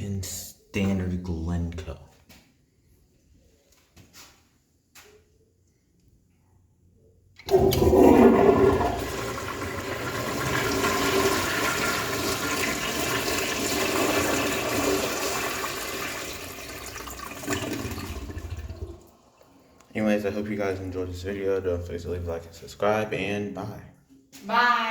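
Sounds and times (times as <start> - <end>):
toilet flushing: 7.4 - 19.6.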